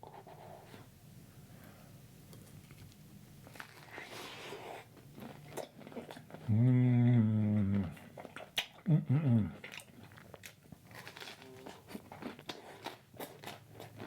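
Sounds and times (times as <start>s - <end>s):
person chewing: 2.6s - 6.6s, 7.6s - 8.9s, 9.5s - 14.0s
person humming mmm: 6.4s - 8.0s, 8.8s - 9.7s.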